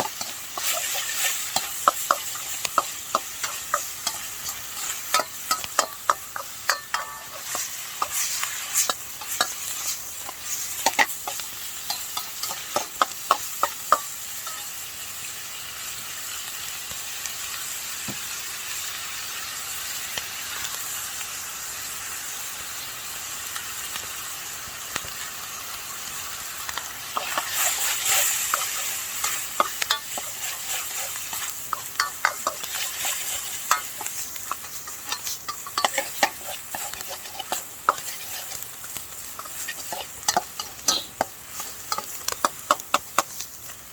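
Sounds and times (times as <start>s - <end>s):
utensil clacking against wok: 0.0s - 14.8s, 26.7s - 43.8s
food sizzling in a wok: 0.0s - 43.9s.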